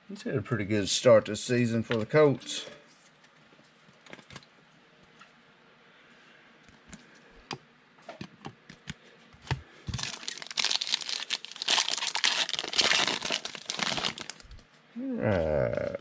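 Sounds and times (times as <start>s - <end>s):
foil wrapper crinkling and tearing: 9.9s - 14.6s.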